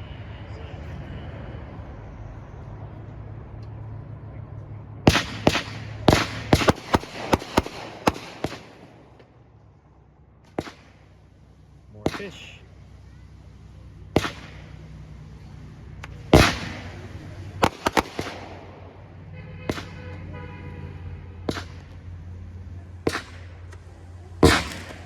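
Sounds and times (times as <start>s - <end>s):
firework cake firing shots: 5.1s - 9.3s, 10.4s - 25.0s.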